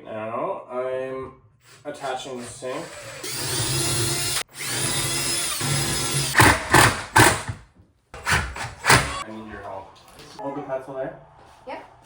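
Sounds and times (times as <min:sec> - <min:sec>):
cordless drill motor whining: 0:01.6 - 0:06.5.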